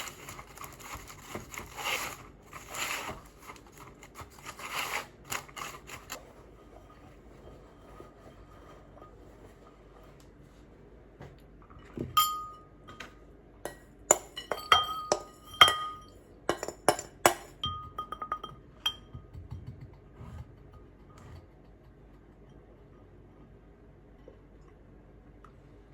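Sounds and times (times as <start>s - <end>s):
dishes clinking: 11.8s - 13.1s, 13.7s - 19.3s.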